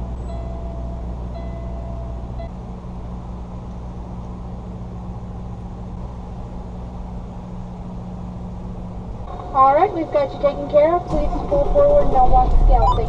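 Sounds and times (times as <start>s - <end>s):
diesel engine idling: 0.0s - 13.0s
repeating electronic beep: 12.8s - 13.0s.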